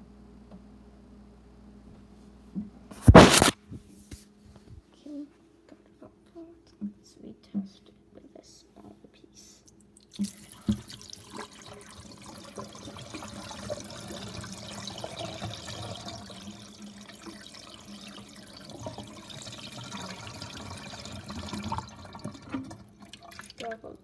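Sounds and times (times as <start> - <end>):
water running into watering can: 10.0 - 24.0.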